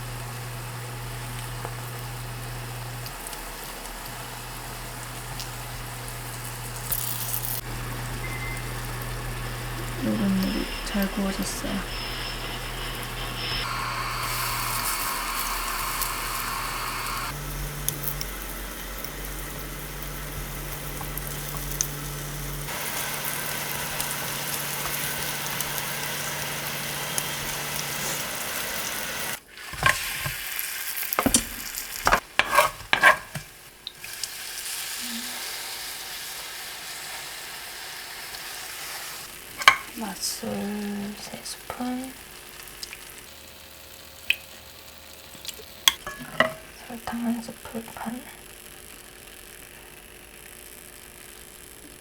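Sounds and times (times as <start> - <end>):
potatoes sizzling in oil: 0.0 - 52.0
utensil clicking against pan: 39.6 - 39.9.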